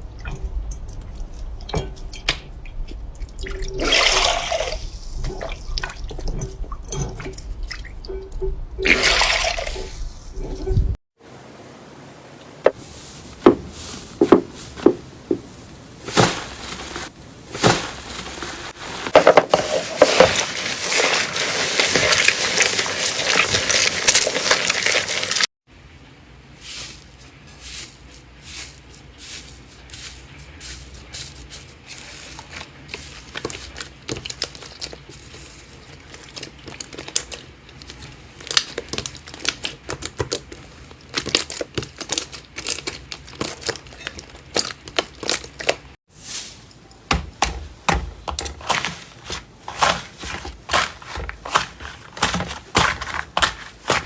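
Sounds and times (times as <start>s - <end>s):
slime clicking and crackling: 35.9s - 45.9s.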